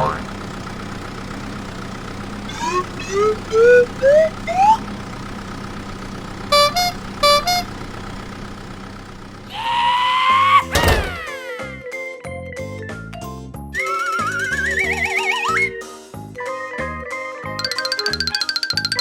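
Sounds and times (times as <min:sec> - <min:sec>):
horn beeping: 0:00.0 - 0:09.8
steady engine hum: 0:00.0 - 0:11.4
rising whistle-like glides: 0:02.5 - 0:04.8.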